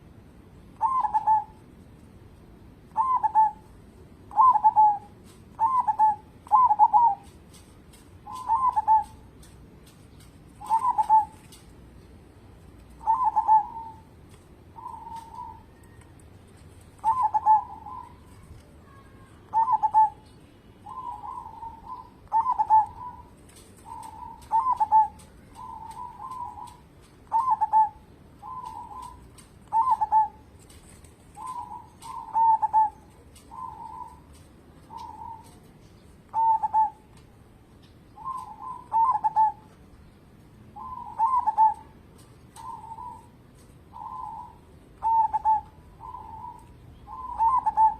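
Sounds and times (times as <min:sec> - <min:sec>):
dove cooing: 0:00.8 - 0:01.6, 0:02.9 - 0:03.7, 0:04.3 - 0:07.3, 0:08.2 - 0:09.3, 0:10.6 - 0:11.6, 0:12.9 - 0:16.1, 0:17.0 - 0:30.5, 0:31.3 - 0:37.1, 0:38.2 - 0:39.8, 0:40.8 - 0:47.9.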